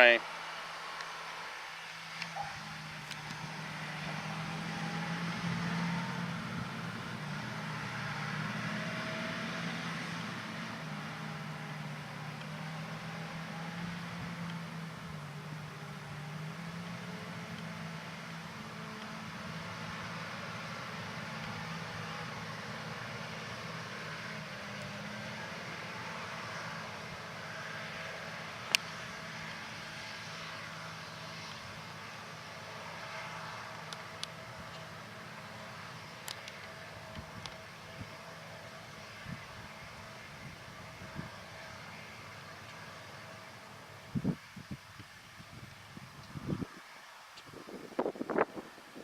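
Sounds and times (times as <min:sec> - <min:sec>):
even hiss: 0:00.0 - 0:07.4
tractor diesel engine running: 0:00.0 - 0:46.8.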